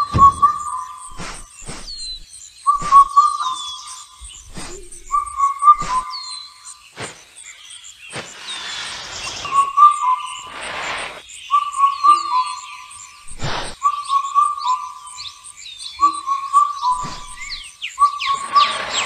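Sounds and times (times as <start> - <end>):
gliding bird calls: 0.0 - 19.0
high bird chirps: 0.0 - 19.0
whistled birdsong phrase: 0.0 - 19.0
whooshing noise: 8.1 - 11.2.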